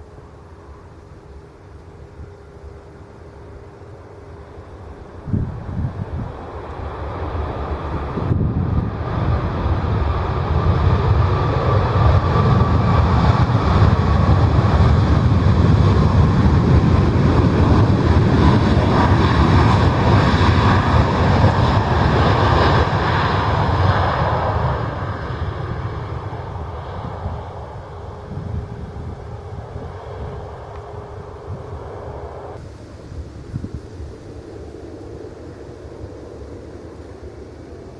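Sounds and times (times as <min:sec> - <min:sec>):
airliner engines passing: 0:00.0 - 0:37.9.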